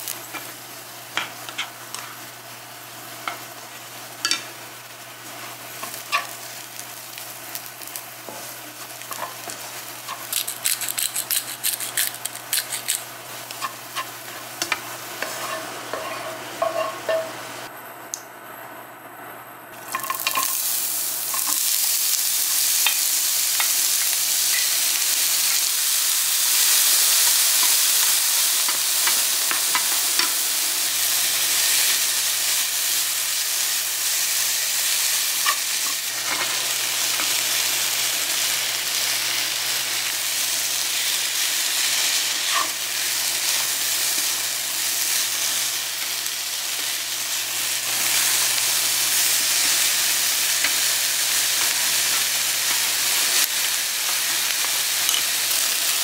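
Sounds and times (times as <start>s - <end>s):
vegetables sizzling in hot oil: 0.0s - 17.7s, 19.7s - 56.0s
wooden spatula scraping a pan: 15.2s - 17.3s.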